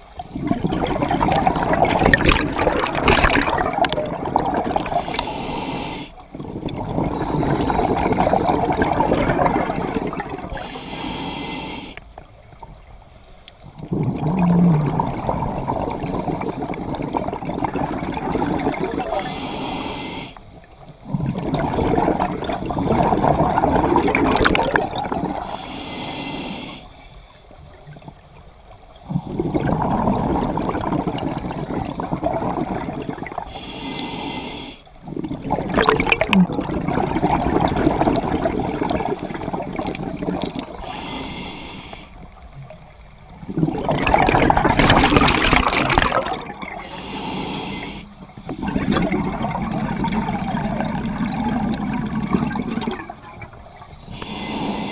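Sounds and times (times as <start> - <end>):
bubbling exhalations: 0.2 - 5.6, 6.3 - 10.7, 13.8 - 19.4, 21.0 - 25.6, 29.0 - 33.7, 35.0 - 41.2, 42.6 - 54.9
hissing regulator inhalations: 5.0 - 6.2, 9.8 - 12.1, 19.1 - 20.6, 25.4 - 27.4, 33.4 - 35.0, 39.2 - 42.4, 46.7 - 49.1, 54.0 - 54.9.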